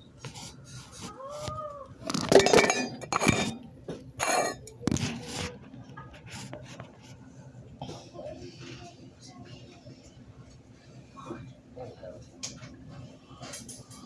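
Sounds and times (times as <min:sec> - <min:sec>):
hard objects clattering and clinking: 0:02.0 - 0:05.2.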